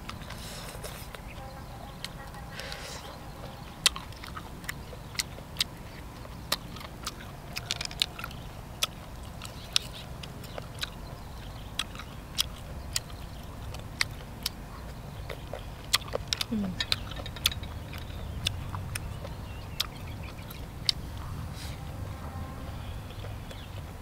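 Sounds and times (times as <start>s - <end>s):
chewing and mouth smacks: 0.0s - 21.7s, 22.9s - 24.0s
low steady rumble: 0.0s - 24.0s.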